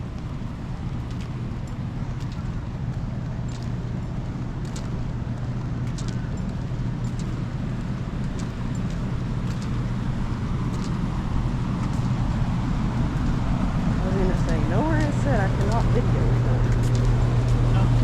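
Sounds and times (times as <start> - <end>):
low motor drone: 0.0 - 18.0
faint ticks: 0.1 - 9.9, 10.7 - 11.0.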